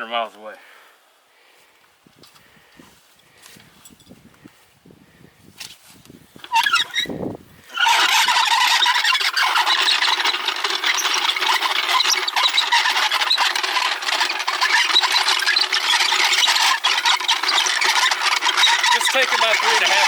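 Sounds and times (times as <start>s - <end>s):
floor jack wheels squealing: 6.4s - 20.0s.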